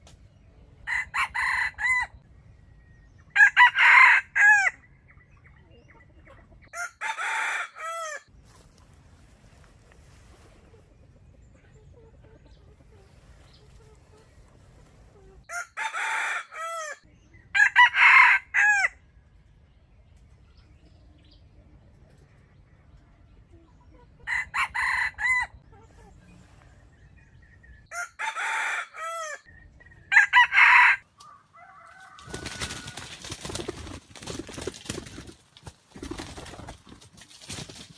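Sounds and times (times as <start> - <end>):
rooster crowing: 0.9 - 2.2, 3.4 - 4.8, 6.7 - 8.3, 15.5 - 17.0, 17.6 - 19.0, 24.3 - 25.6, 27.9 - 29.5, 30.1 - 33.1
rustling and scuffling: 8.4 - 10.9, 32.1 - 37.9.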